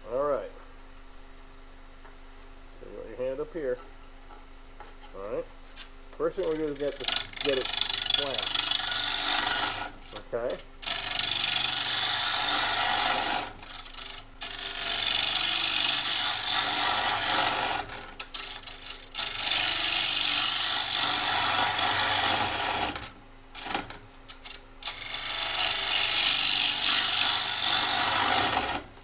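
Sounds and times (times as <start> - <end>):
gouge cutting wood on lathe: 6.4 - 10.1, 10.8 - 29.0.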